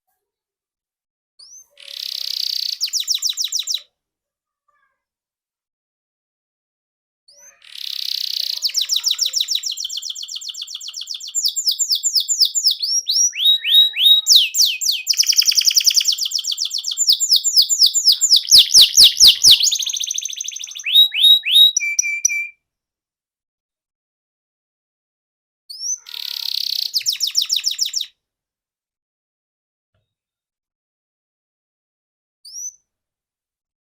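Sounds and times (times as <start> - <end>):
canary singing: 1.4 - 3.8, 7.4 - 22.5, 25.7 - 28.1.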